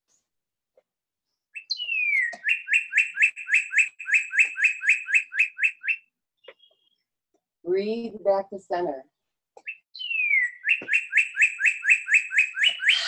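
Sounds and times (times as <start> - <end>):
songbird singing: 1.6 - 7.1, 9.6 - 13.0.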